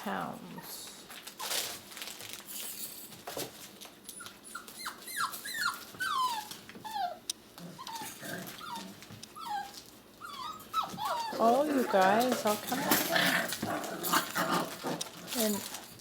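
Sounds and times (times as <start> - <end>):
puppies whimpering: 4.1 - 15.6.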